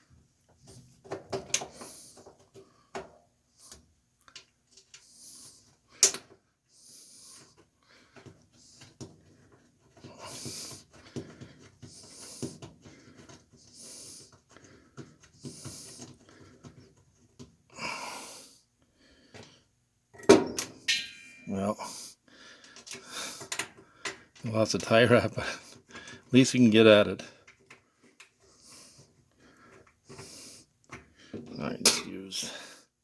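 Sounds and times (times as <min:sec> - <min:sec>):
man breathing through nose: 0:01.6 - 0:03.0, 0:05.0 - 0:09.0, 0:10.0 - 0:16.8, 0:17.7 - 0:19.7, 0:21.9 - 0:24.4, 0:25.6 - 0:26.3, 0:28.4 - 0:31.4
small parts clicking and knocking: 0:04.2 - 0:05.1, 0:06.0 - 0:06.4, 0:22.6 - 0:26.4.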